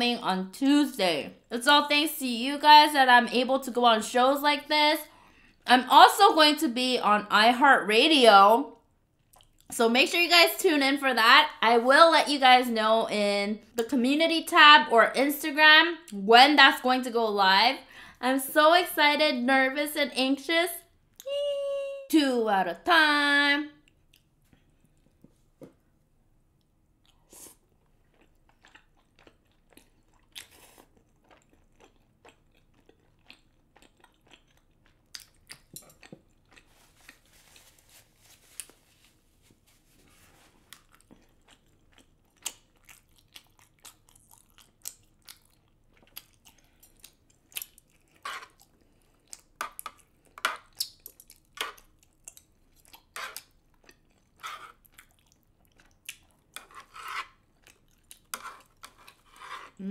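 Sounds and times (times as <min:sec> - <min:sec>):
person chewing with mouth clicks: 0:26.6 - 0:37.3, 0:40.6 - 0:56.6, 0:57.3 - 0:59.9.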